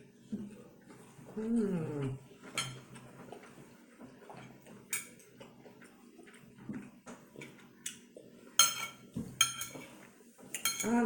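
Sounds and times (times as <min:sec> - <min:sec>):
eating sounds: 0:00.4 - 0:08.5.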